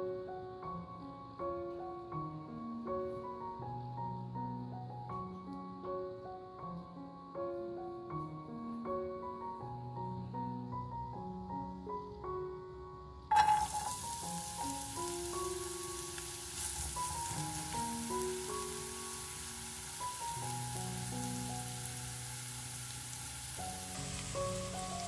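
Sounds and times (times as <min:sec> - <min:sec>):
onion sizzling in hot oil: 0:13.3 - 0:25.0.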